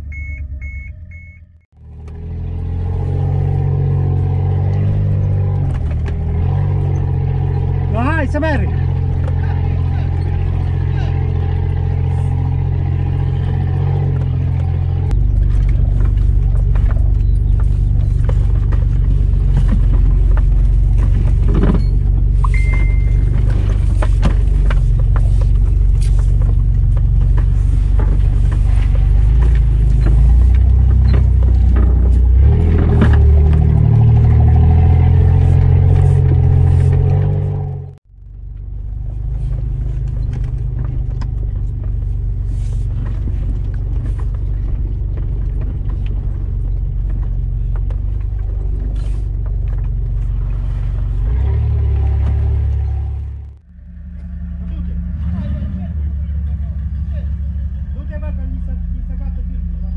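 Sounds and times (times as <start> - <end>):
engine droning under load: 0.0 - 59.9
knocks and rattles from bumps: 4.3 - 37.7.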